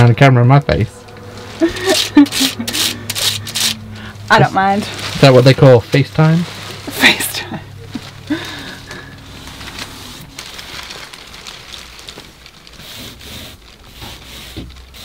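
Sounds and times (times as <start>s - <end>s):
paint roller on wood: 12.8s - 15.0s.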